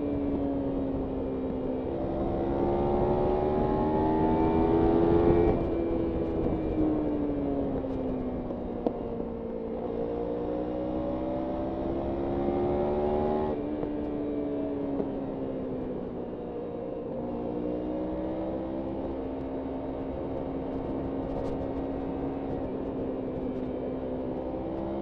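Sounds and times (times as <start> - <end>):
wind noise: 0.0 - 14.2, 18.2 - 25.0
motorcycle engine revving: 9.6 - 13.8, 17.3 - 25.0.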